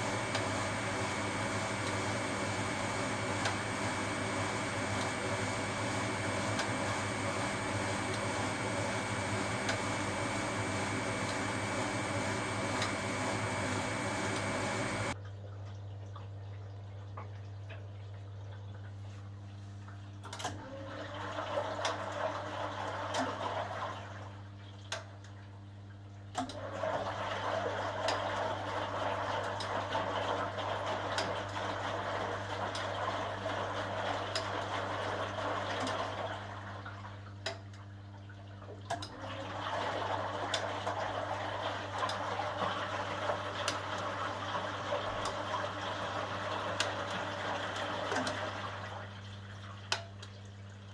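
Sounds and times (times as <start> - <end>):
steady low hum: 0.0 - 15.2
water sloshing in washing machine: 0.0 - 50.9.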